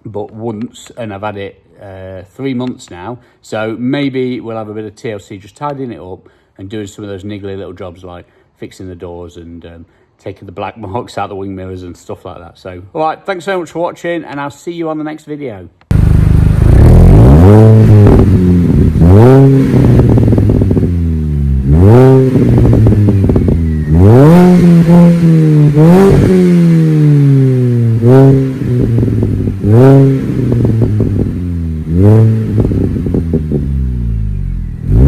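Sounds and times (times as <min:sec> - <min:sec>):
car engine revving: 0:15.9 - 0:35.0.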